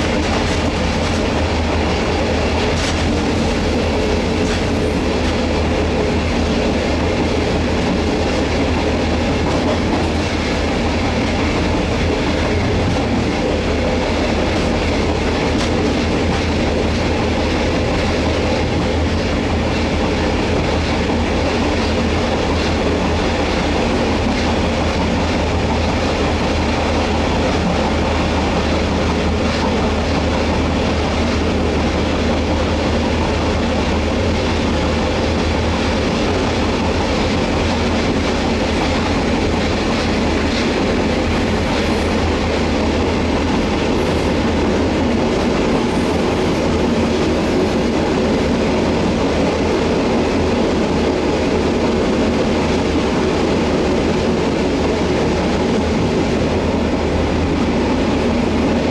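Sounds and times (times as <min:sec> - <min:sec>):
clickety-clack over rail joints: 0:00.0 - 0:58.9
train wheels rumbling on rails: 0:00.0 - 0:58.9.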